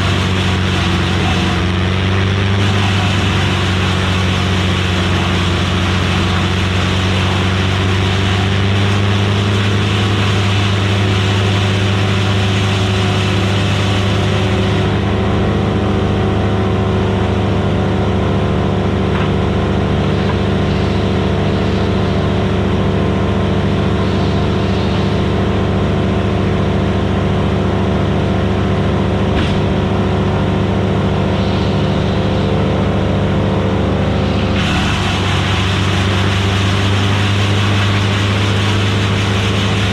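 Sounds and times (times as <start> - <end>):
wood chipper engine running: 0.0 - 39.9
harsh hissing noise: 34.0 - 39.9.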